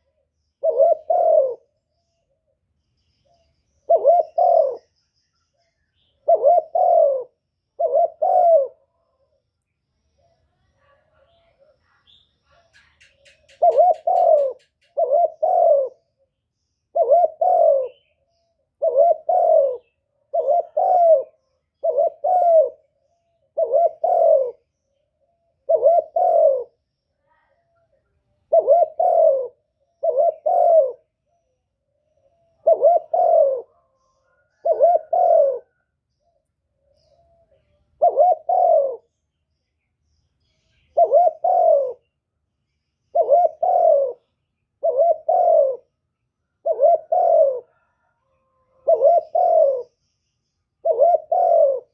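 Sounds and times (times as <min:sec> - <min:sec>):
pigeon cooing: 0:00.0 - 0:01.8, 0:03.4 - 0:05.0, 0:06.1 - 0:09.4, 0:12.5 - 0:16.1, 0:16.9 - 0:26.8, 0:27.5 - 0:39.2, 0:40.8 - 0:42.1, 0:43.1 - 0:46.0, 0:46.6 - 0:50.0, 0:50.8 - 0:51.9.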